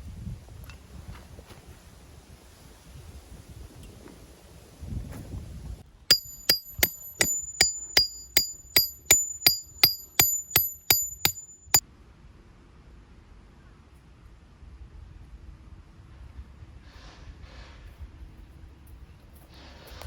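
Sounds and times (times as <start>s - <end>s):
hammer striking steel tent peg: 6.1s - 11.8s.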